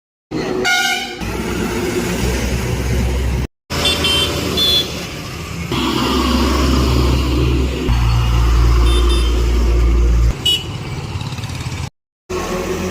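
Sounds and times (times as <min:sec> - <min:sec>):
truck engine rumbling: 0:00.3 - 0:12.9
truck horn blast: 0:00.6 - 0:01.2, 0:03.7 - 0:05.0, 0:05.7 - 0:06.6, 0:08.2 - 0:10.8.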